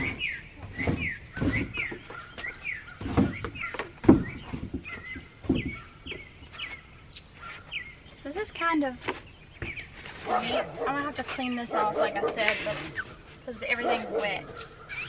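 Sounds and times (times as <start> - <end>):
wicker furniture thumping on deck: 0.0 - 6.4
bird chirping: 0.0 - 15.0.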